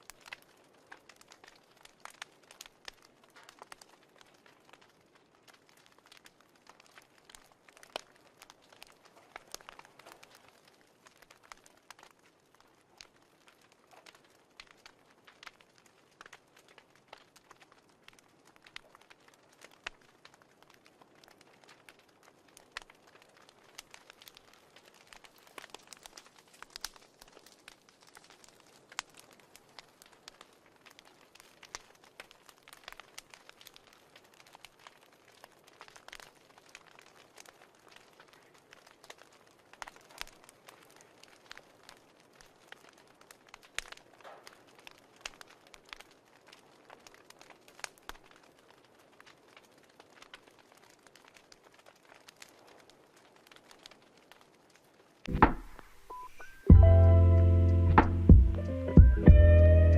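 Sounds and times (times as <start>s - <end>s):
wood fire crackling: 0.0s - 59.9s
low steady hiss: 55.2s - 59.9s.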